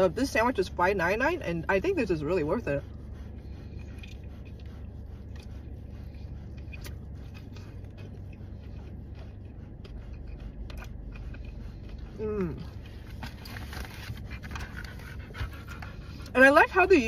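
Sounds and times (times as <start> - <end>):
steady low hum: 0.0 - 17.0
person chewing a sandwich: 3.0 - 16.3.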